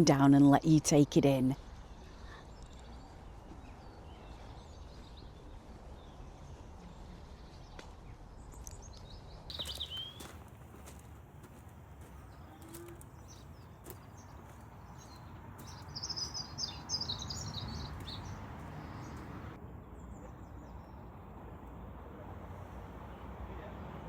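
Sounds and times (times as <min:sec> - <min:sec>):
small songbirds chirping: 0:01.6 - 0:10.3, 0:12.2 - 0:21.1.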